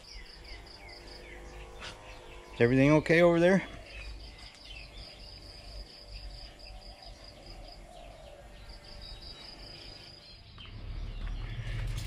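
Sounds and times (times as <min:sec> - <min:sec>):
insects trilling: 0:00.0 - 0:10.6
low rumble: 0:09.8 - 0:12.0.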